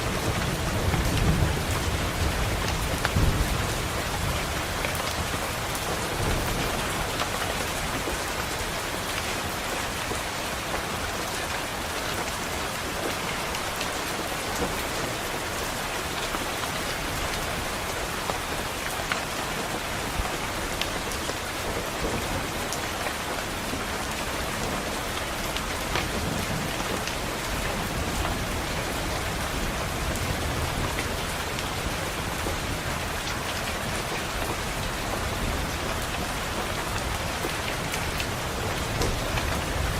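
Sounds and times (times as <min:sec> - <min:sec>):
rain pattering on a window: 0:00.0 - 0:39.9
distant thunder rumbling: 0:00.1 - 0:08.0.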